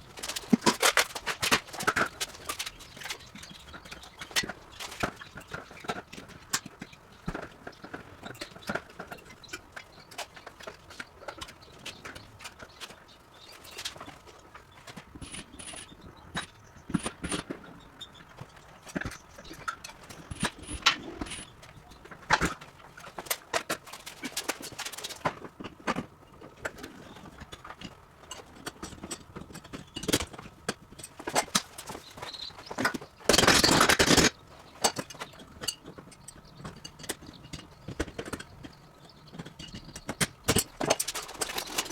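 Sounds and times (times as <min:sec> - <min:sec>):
knocks and clatter of dismantling: 0:00.1 - 0:41.9
bird chirping: 0:11.0 - 0:22.1, 0:31.8 - 0:33.3.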